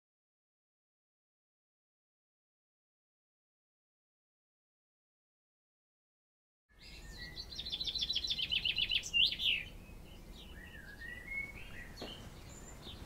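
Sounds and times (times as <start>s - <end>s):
faint bird chirps: 6.7s - 13.0s
sweeping bird calls: 6.7s - 13.0s
bird trilling: 7.0s - 13.0s.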